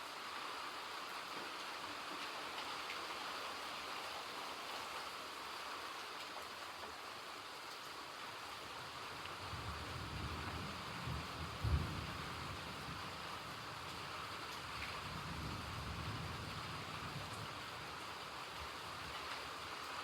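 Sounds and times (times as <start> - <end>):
steady rain falling: 0.0 - 20.0
thunder rumble and crack: 9.6 - 13.1.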